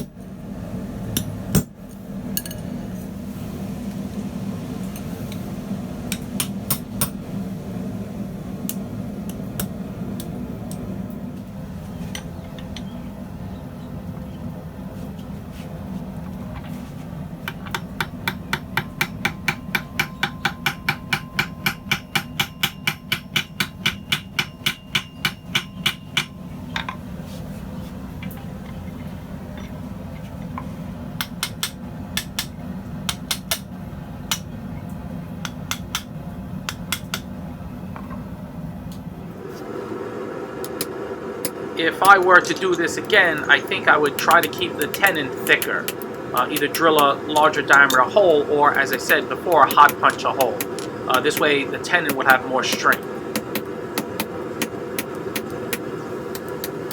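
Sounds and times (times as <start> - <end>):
steady low hum: 0.0 - 56.9
hammer striking steel on anvil: 6.1 - 7.2, 17.4 - 27.0, 31.2 - 33.7, 35.4 - 36.1, 36.7 - 37.3, 43.0 - 56.9.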